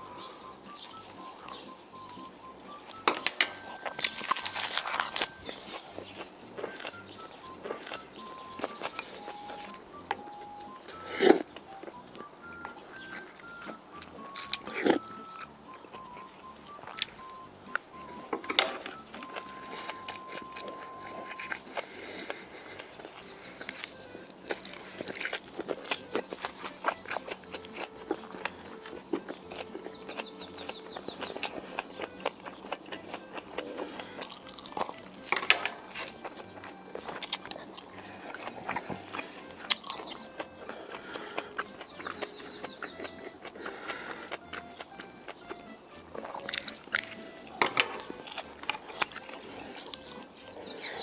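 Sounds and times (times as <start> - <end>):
biting and chewing food: 0.0 - 51.0
light background music: 0.0 - 51.0
sharp crunching clicks: 2.7 - 51.0
chopsticks clicking on dishes: 3.0 - 4.1, 47.6 - 49.3.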